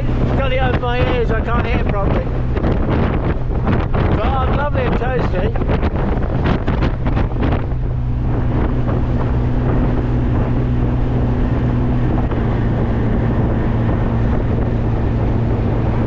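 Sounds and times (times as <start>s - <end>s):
wind and road noise: 0.0s - 16.0s
car engine droning: 5.6s - 16.0s.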